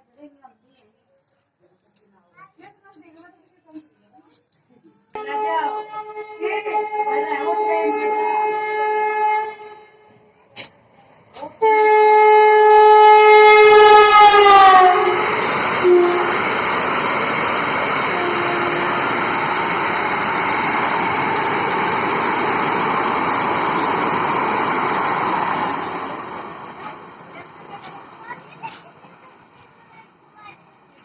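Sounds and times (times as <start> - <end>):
train horn: 5.2 - 10.2, 11.6 - 16.6, 18.0 - 20.1
train coaches rushing past: 9.6 - 31.0.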